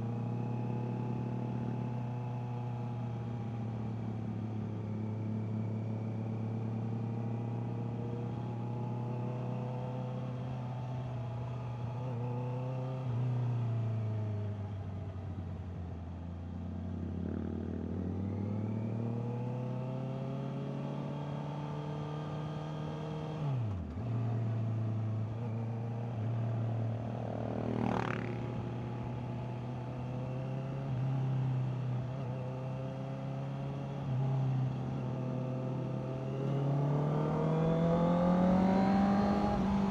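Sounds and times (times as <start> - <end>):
motorcycle engine accelerating: 16.9 - 39.9.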